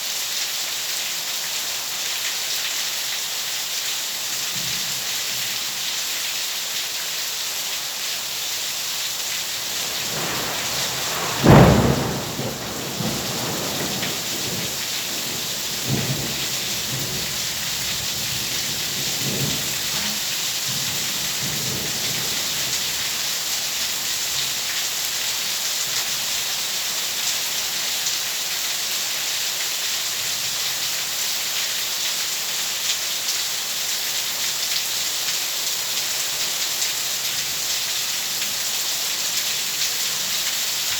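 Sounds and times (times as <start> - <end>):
heavy rain: 0.0 - 40.9
thunderclap: 9.6 - 22.5
rolling thunder rumbles: 9.6 - 23.0.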